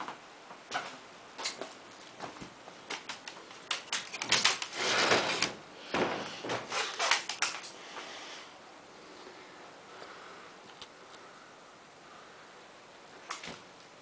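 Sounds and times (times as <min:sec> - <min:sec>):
door scraping slide: 0:04.2 - 0:07.3.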